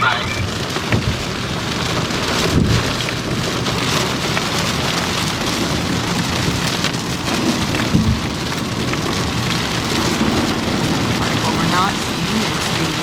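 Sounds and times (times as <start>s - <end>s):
heavy rain on vehicle: 0.0s - 13.0s
low thumps: 0.4s - 3.5s, 5.6s - 11.5s.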